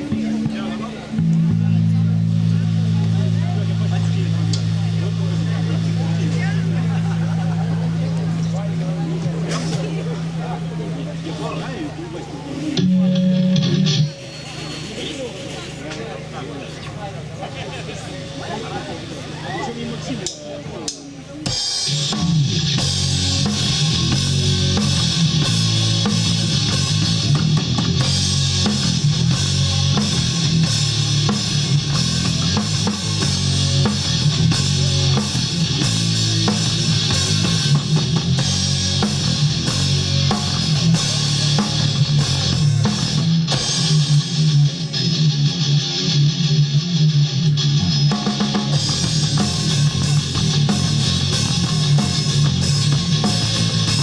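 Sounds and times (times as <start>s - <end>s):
rock band playing live: 0.0s - 16.3s, 21.2s - 54.0s.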